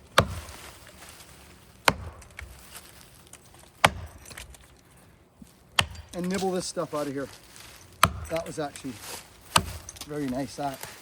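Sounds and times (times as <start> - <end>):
axe chopping into wood: 0.0 - 0.7, 1.8 - 2.6, 3.8 - 4.5, 5.7 - 6.7, 8.0 - 8.6, 9.5 - 10.1.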